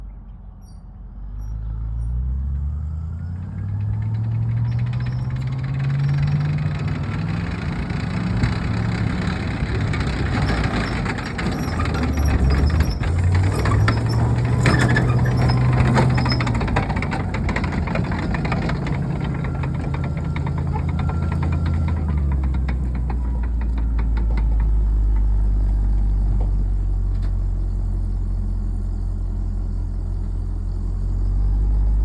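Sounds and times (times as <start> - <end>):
tracked vehicle engine revving: 1.2 - 32.0.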